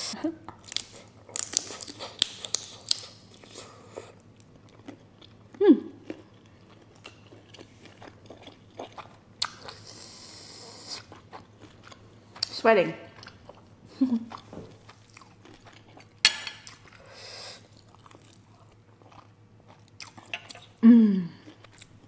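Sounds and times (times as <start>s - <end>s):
crunchy chewing of prawn: 0.6s - 12.5s, 13.1s - 20.8s
person humming mm: 20.8s - 21.4s.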